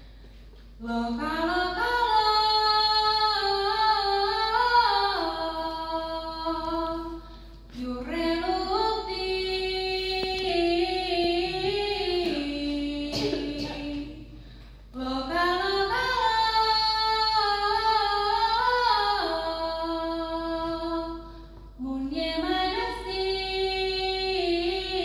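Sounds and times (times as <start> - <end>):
woman singing long held notes: 0.8 - 14.3.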